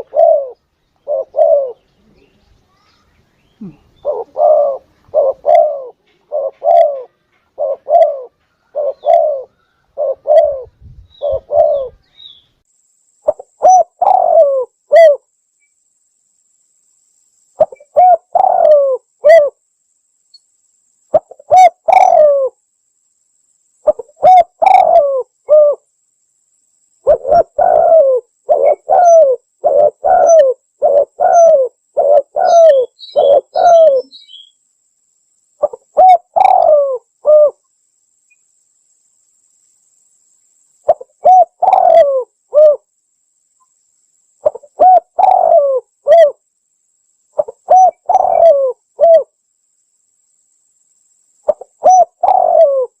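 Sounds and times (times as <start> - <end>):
dove cooing: 0.0 - 2.3, 3.5 - 12.0, 13.2 - 15.2, 17.6 - 19.6, 21.1 - 22.6, 23.8 - 25.8, 27.0 - 34.2, 35.6 - 37.6, 40.9 - 42.9, 44.4 - 46.4, 47.4 - 49.3, 51.5 - 53.0.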